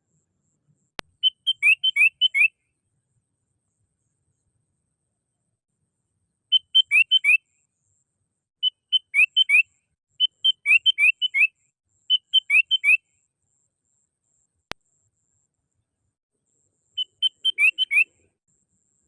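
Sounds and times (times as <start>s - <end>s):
bird calling bubbly whistles: 17.0s - 18.1s.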